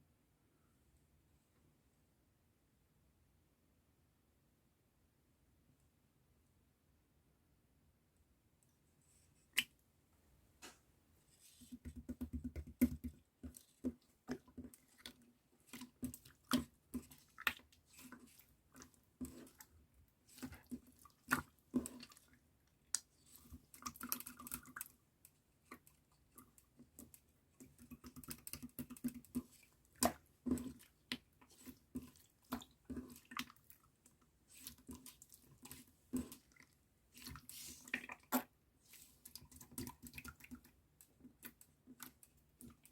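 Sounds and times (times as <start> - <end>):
slime squelching: 11.3 - 42.9.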